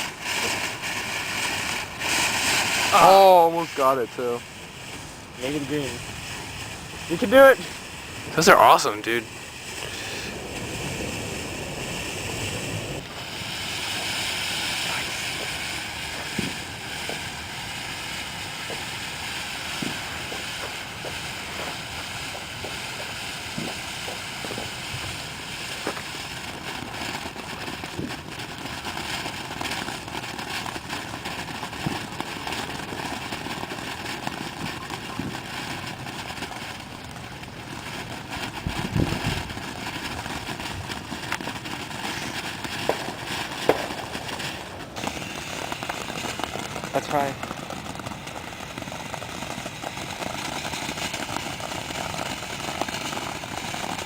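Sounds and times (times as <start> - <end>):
fountain firework spraying hiss: 0.0 - 54.0
small crackles: 29.5 - 54.0.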